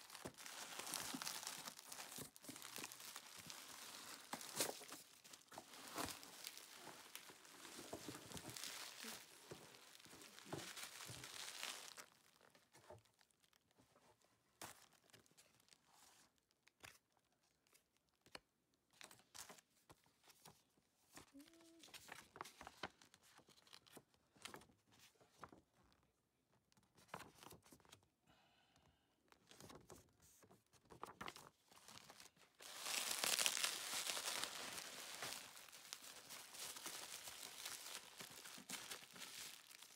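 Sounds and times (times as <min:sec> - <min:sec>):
bubble wrap crinkling: 0:00.0 - 0:13.7, 0:31.2 - 0:39.9.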